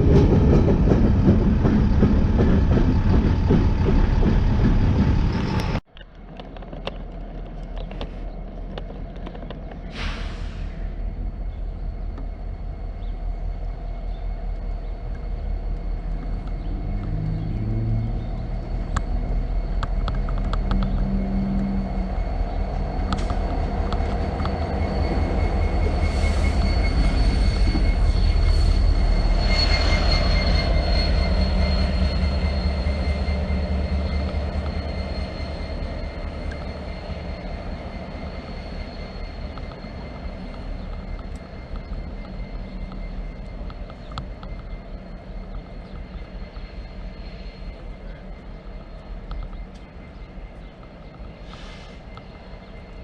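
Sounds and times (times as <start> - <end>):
train rumbling past: 0.0 - 53.0
faint high ringing: 17.7 - 53.0.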